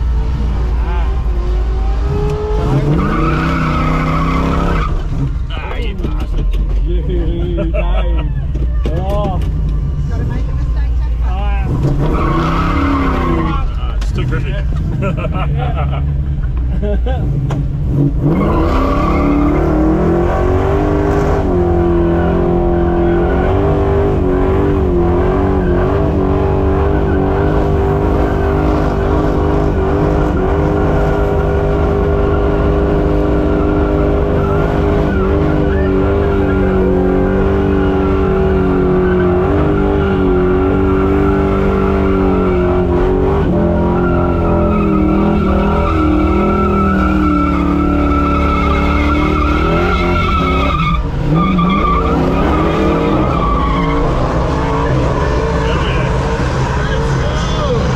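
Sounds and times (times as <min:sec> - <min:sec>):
engine at high revs: 0:00.0 - 0:05.2, 0:17.2 - 0:57.9
tyres spinning and squealing: 0:00.0 - 0:06.9, 0:11.6 - 0:15.2, 0:18.2 - 0:57.9.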